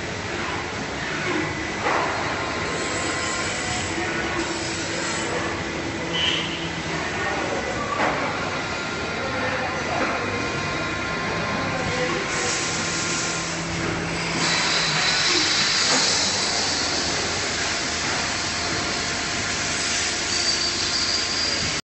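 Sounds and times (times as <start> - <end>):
machine steady hiss: 12.3 - 21.8.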